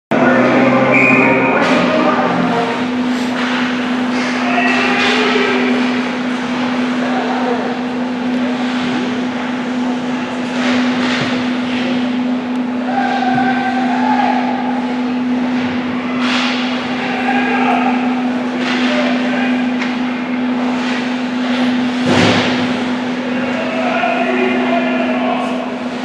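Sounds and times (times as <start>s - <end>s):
steady low hum: 0.1s - 10.8s.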